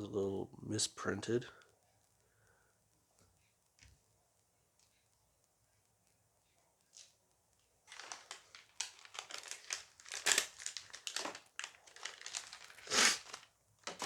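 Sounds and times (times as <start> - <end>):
foil pack crinkling: 7.8 - 14.0.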